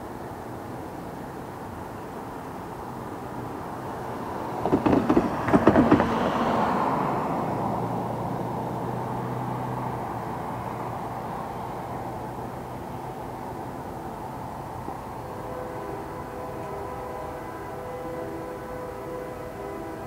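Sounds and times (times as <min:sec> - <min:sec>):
diesel train rumbling: 0:00.0 - 0:20.0
loud sharp knocks: 0:04.6 - 0:06.3.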